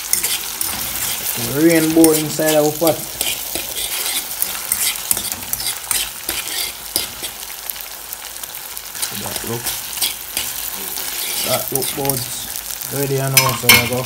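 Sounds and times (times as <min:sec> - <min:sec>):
utensil scraping a pot: 0:00.0 - 0:07.5, 0:09.0 - 0:12.6
food sizzling in oil: 0:00.0 - 0:14.0.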